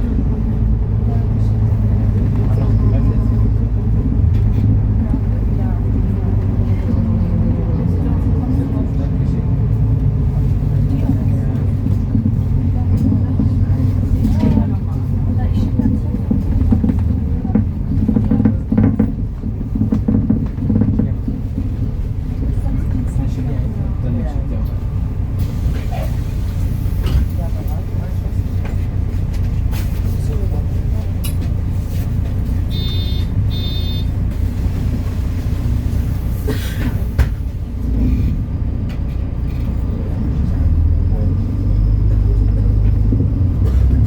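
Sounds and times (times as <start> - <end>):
bus diesel engine droning: 0.0 - 44.0
bus rattling: 0.0 - 44.0
short electronic beeps: 32.7 - 34.1.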